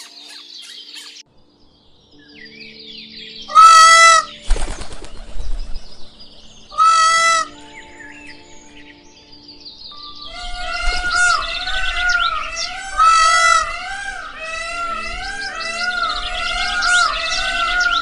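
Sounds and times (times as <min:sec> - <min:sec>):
faint background music: 0:00.0 - 0:18.0
large bird harsh calls: 0:03.4 - 0:04.4, 0:06.6 - 0:07.6, 0:10.2 - 0:18.0.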